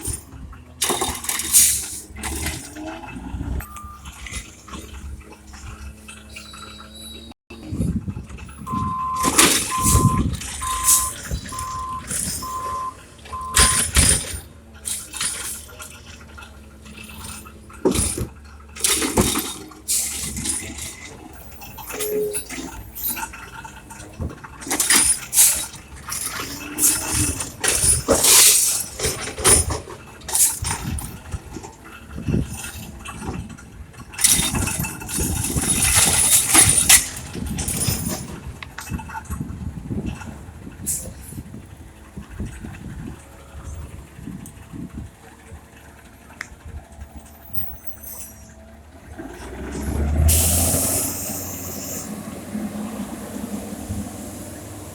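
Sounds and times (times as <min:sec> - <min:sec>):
recyclables clattering into hopper: 0:00.0 - 0:03.1, 0:08.7 - 0:43.8
truck engine running: 0:00.0 - 0:54.9
truck back-up alarm beeping: 0:03.6 - 0:04.6, 0:08.5 - 0:14.4.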